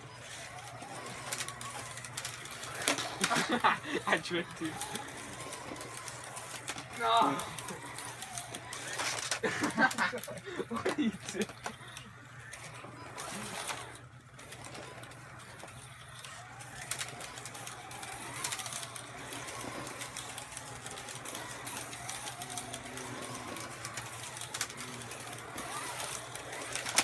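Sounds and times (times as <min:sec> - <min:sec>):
slot car motors whining: 0:00.0 - 0:27.0.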